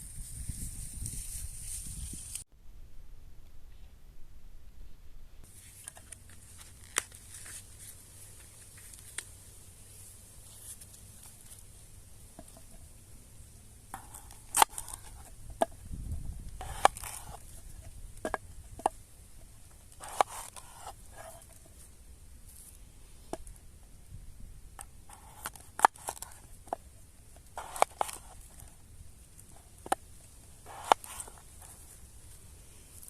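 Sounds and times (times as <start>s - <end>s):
faint steady high hiss: 0.0s - 33.0s
hands handling objects: 5.4s - 9.4s, 13.9s - 15.9s, 16.5s - 23.6s, 24.8s - 33.0s.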